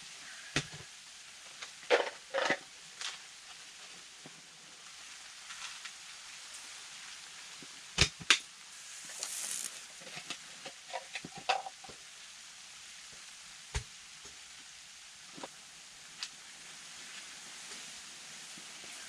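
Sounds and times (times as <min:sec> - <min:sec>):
brief hiss: 0:08.3 - 0:10.4.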